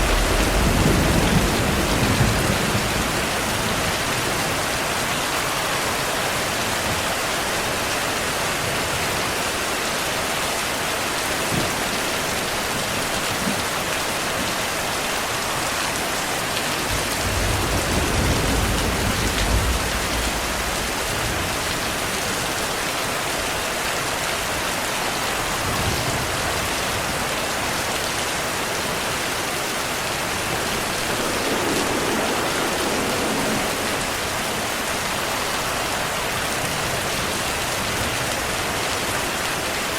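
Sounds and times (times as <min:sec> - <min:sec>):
distant thunder rumble: 0:00.0 - 0:05.1, 0:16.8 - 0:22.6, 0:28.7 - 0:38.4
rain falling: 0:00.0 - 0:39.9.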